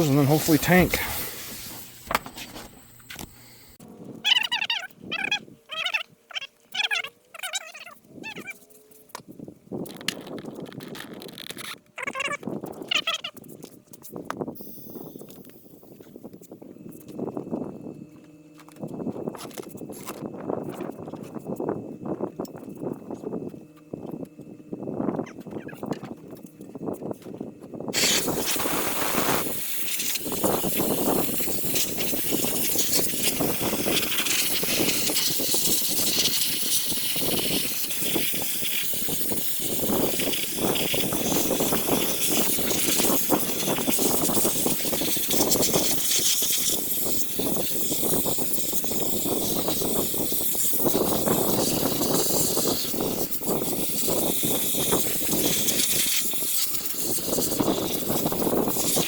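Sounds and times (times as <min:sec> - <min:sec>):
sandblaster hissing: 0:00.0 - 0:03.8, 0:28.0 - 0:59.0.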